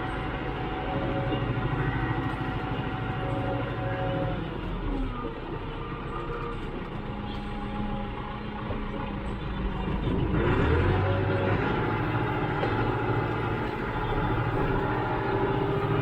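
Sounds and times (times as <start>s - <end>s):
tractor engine revving: 7.2s - 16.0s.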